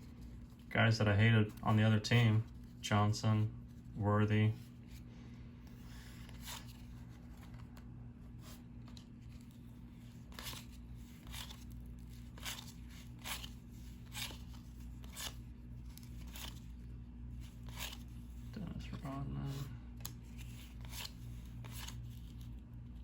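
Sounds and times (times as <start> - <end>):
cards sliding papery swish: 8.4 - 18.4.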